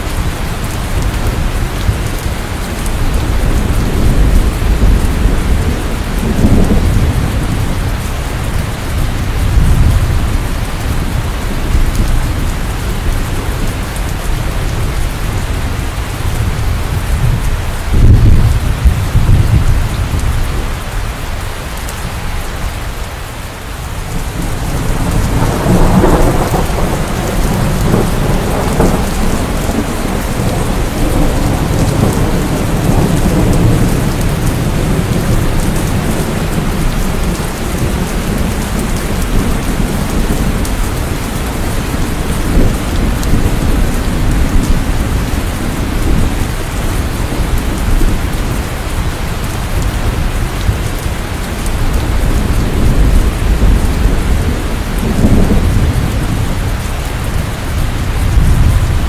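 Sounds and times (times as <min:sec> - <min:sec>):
heavy rain: 0:00.0 - 0:59.0
rolling thunder: 0:00.1 - 0:21.0, 0:24.2 - 0:59.0
sharp thunderclap: 0:16.5 - 0:20.3, 0:24.7 - 0:36.6, 0:52.0 - 0:56.9, 0:57.7 - 0:59.0.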